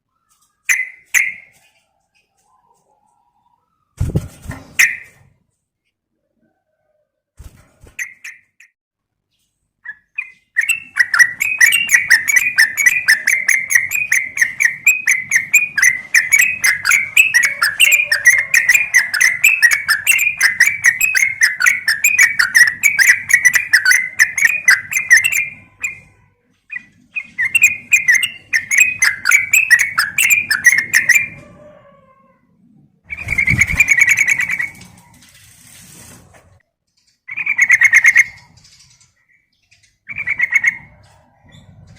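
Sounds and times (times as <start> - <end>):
bulbul chattering chirps: 9.8 - 31.3.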